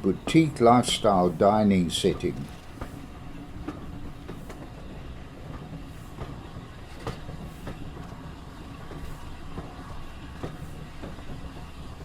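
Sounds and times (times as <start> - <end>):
train rumbling on rails: 0.0 - 12.0
wheels clicking over rails: 0.0 - 12.0.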